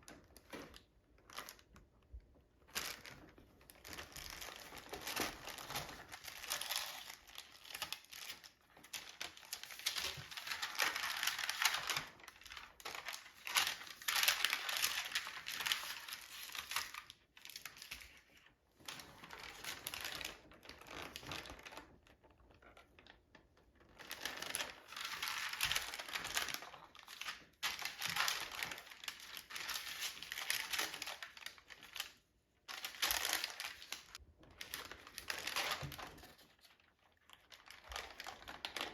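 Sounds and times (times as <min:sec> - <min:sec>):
packaging crinkling: 0:23.9 - 0:38.9.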